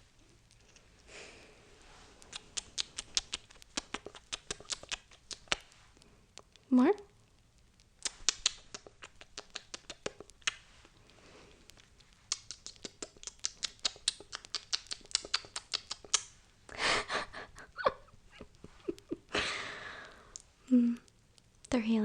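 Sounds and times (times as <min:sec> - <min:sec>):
close-miked kissing lip smacks: 0:02.1 - 0:07.1, 0:07.8 - 0:19.3, 0:20.0 - 0:21.8
breathy burst: 0:19.3 - 0:20.3.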